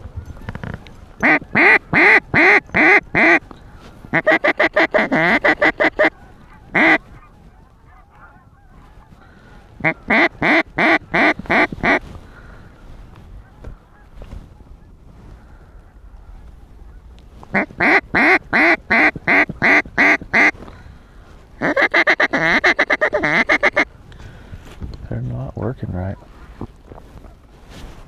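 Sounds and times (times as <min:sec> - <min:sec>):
duck call honking quacks: 0:00.4 - 0:03.5, 0:04.1 - 0:07.3, 0:07.9 - 0:12.0, 0:17.5 - 0:20.6, 0:21.6 - 0:23.9.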